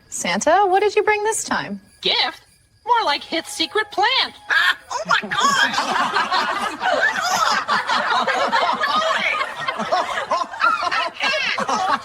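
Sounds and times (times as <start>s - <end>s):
people laughing together: 4.9s - 12.0s.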